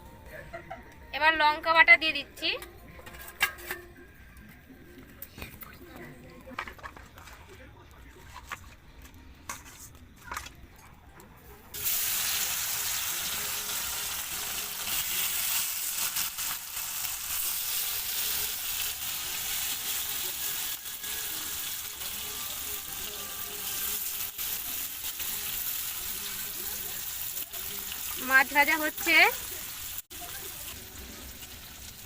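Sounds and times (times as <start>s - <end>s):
fish sizzling in hot oil: 11.7s - 32.0s.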